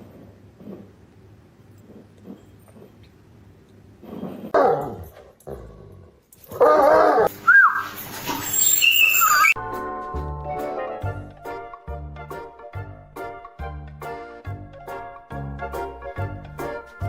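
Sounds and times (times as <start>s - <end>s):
dog whining: 6.6s - 9.6s.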